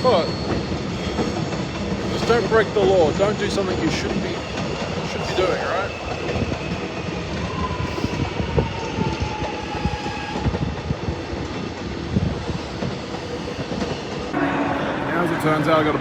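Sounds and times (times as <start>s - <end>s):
train wheels knocking on track: 0.0s - 7.5s
train rumble: 0.0s - 16.0s.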